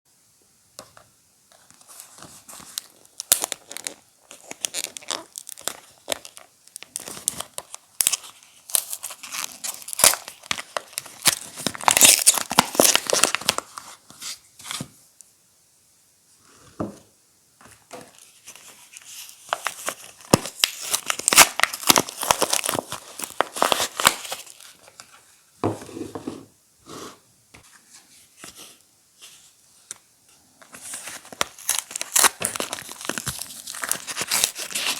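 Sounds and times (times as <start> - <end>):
wrappers tearing and crinkling: 1.9 - 13.8, 18.9 - 24.9, 30.7 - 34.9.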